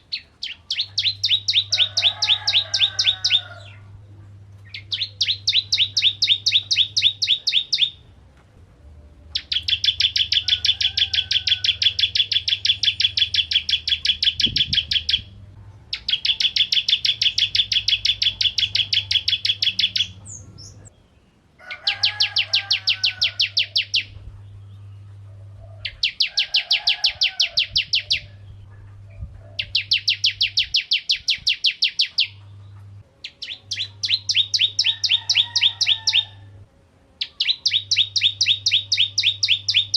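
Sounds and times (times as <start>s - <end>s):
bird rapid high chirping: 0.0s - 3.5s, 4.6s - 8.0s, 9.3s - 21.2s, 21.9s - 24.9s, 25.9s - 28.7s, 29.6s - 32.4s, 33.2s - 36.3s, 37.2s - 39.9s
steady low hum: 0.0s - 10.7s, 11.4s - 21.6s, 23.4s - 26.2s, 27.2s - 34.3s.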